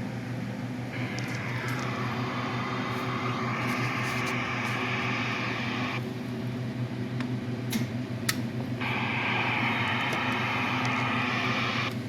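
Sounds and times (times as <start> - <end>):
steady low hum: 0.0 - 12.0
radio receiver hissing: 1.0 - 6.0, 8.8 - 11.9.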